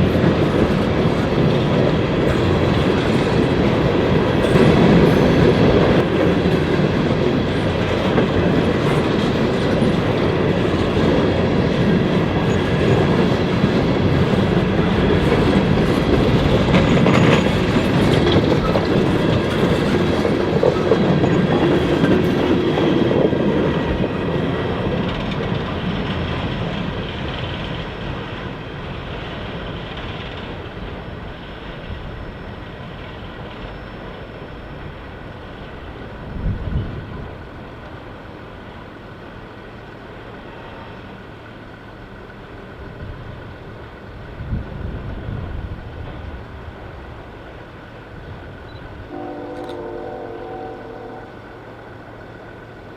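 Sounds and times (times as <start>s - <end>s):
train wheels clacking on rails: 0.0s - 38.1s.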